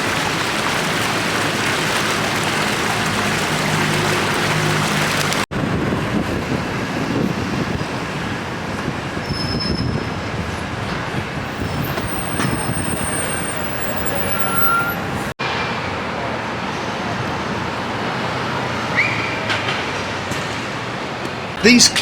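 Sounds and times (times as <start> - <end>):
rumble of passing vehicles: 0.0 - 21.6
faint high squeals: 11.7 - 15.3.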